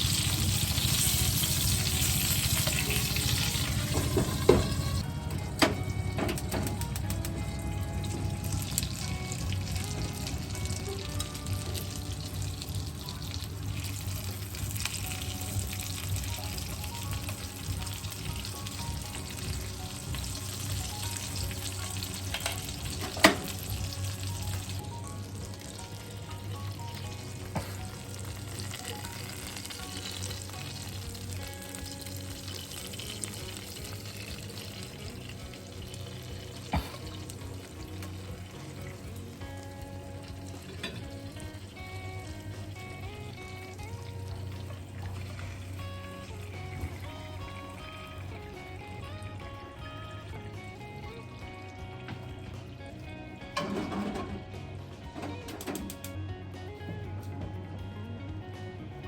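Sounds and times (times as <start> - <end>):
food sizzling in a pan: 0.0 - 5.0, 8.0 - 49.0
faint background music: 0.0 - 59.0.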